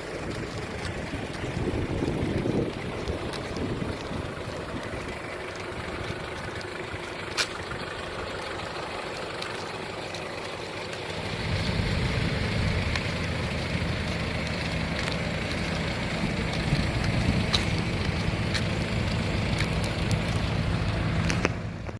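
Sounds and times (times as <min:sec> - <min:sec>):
diesel engine idling: 0:00.0 - 0:21.9.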